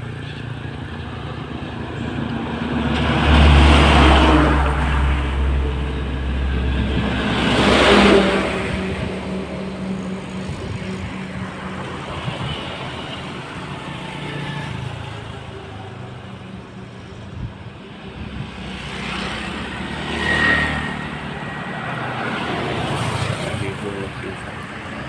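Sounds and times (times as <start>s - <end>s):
vehicles passing: 0.0s - 25.0s.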